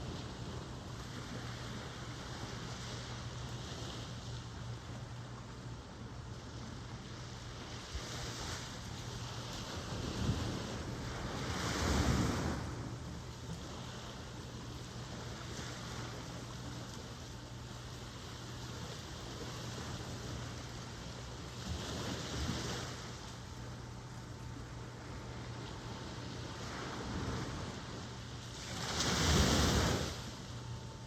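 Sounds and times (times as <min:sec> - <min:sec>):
ocean waves breaking: 0:06.5 - 0:31.0.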